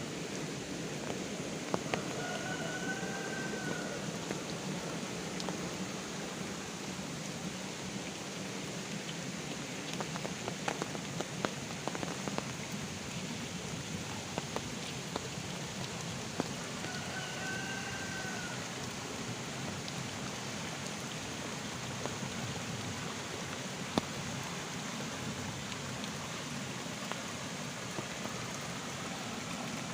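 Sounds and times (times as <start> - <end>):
heavy rain falling: 0.0 - 29.9
faint call rising and falling: 1.9 - 4.2.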